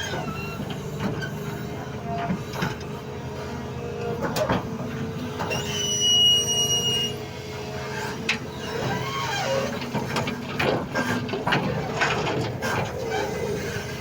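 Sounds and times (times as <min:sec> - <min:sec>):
excavator engine running: 0:07.4 - 0:14.0.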